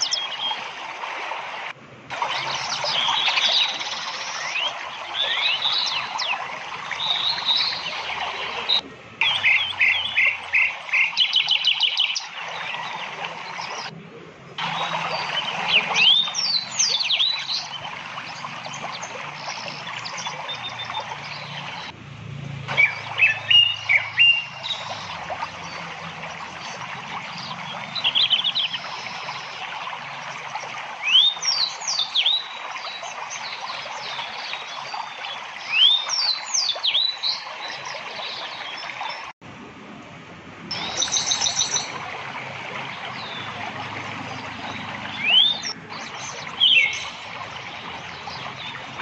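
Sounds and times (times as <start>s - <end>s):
steady outdoor hiss: 0.0s - 49.0s
small birds chirping: 2.2s - 21.9s, 22.7s - 39.4s, 40.7s - 42.1s, 42.9s - 49.0s
bird trill: 7.0s - 12.9s, 22.7s - 25.2s, 44.7s - 47.2s.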